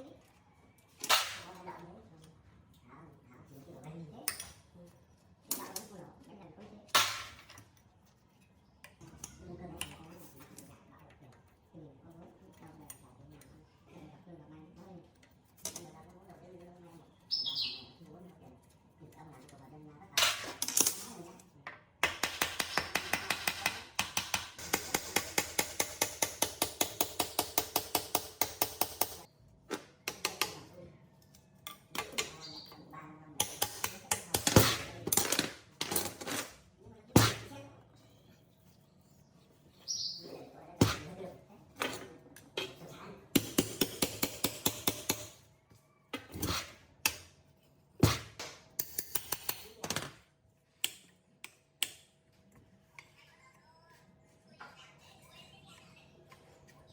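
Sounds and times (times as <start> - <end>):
hammer tapping on metal: 22.0 - 29.3, 43.4 - 45.4.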